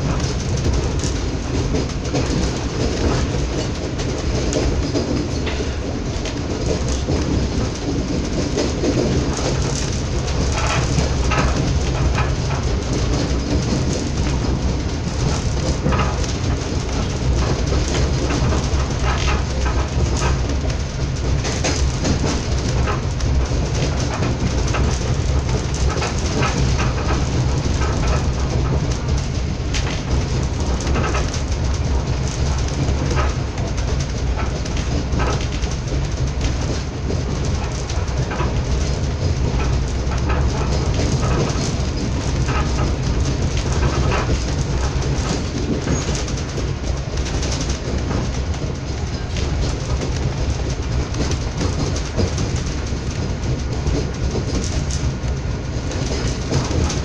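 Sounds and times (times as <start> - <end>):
train rumbling on the track: 0.0 - 57.0
wheels clicking over rails: 0.0 - 57.0.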